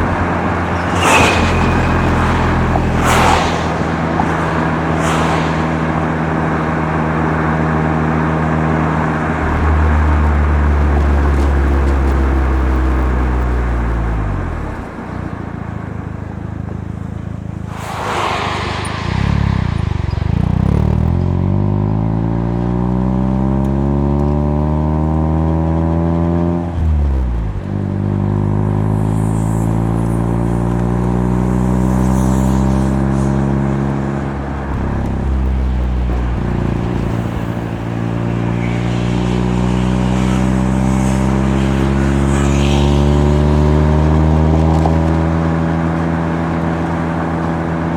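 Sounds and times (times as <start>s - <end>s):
brief rushing noise: 0.0s - 7.4s, 17.6s - 21.7s, 29.2s - 44.0s
rotary engine accelerating: 0.0s - 14.0s, 17.6s - 25.4s, 28.3s - 47.6s.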